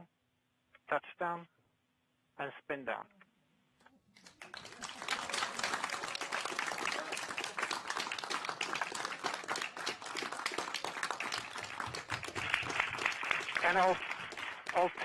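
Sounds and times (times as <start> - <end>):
crowd applauding: 4.2 - 15.0.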